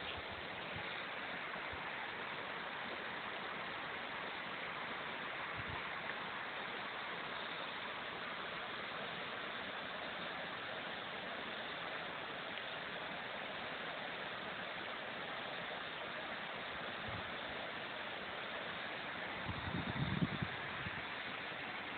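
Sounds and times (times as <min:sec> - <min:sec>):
creek rushing: 0:00.0 - 0:21.9.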